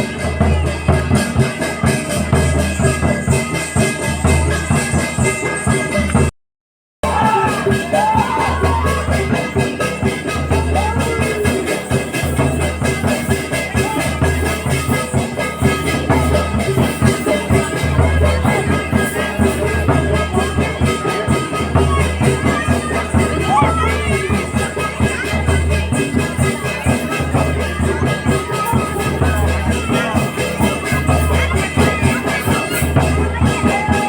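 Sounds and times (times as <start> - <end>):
folk percussion with drums: 0.0 - 6.3, 7.0 - 34.0
voices calling out: 7.0 - 34.0.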